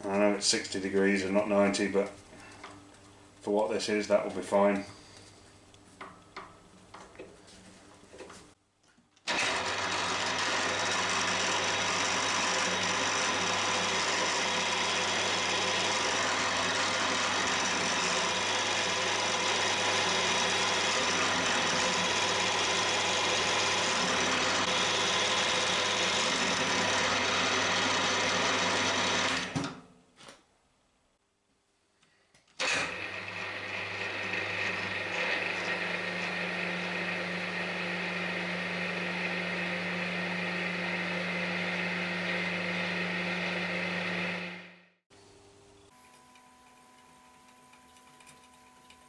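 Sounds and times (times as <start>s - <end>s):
milling machine hum and rattle: 45.9s - 49.0s.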